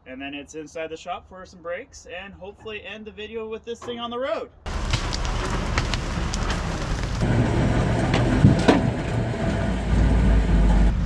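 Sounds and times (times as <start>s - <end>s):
sharp cracks: 4.7s - 9.2s
heavy truck engine under load: 4.7s - 11.0s.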